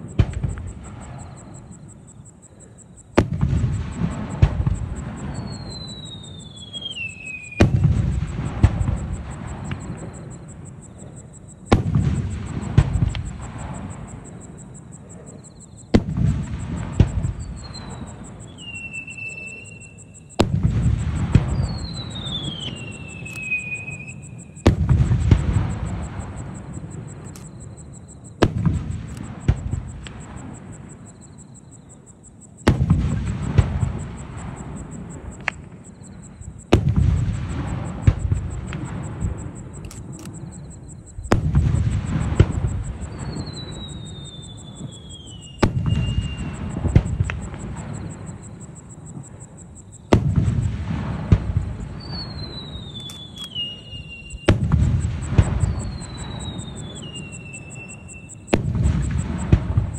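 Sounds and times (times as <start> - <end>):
firework falling whistles: 0.0 - 2.0, 3.2 - 10.6, 11.2 - 31.7, 32.6 - 59.9
firework shells bursting: 36.7 - 48.4, 50.1 - 59.9.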